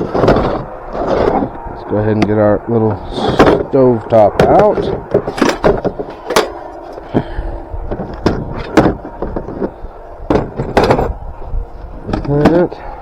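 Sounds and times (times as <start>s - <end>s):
wind rumble on microphone: 0.0s - 13.0s
cooking gear knocking and clattering: 4.4s - 6.5s.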